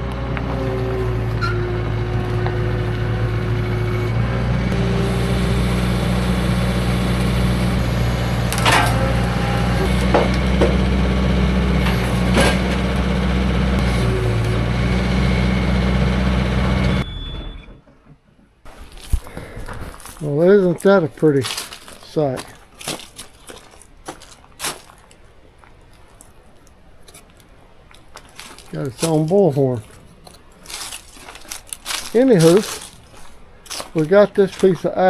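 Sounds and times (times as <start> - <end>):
sawmill engine cutting log: 0.0 - 17.7, 28.0 - 35.0.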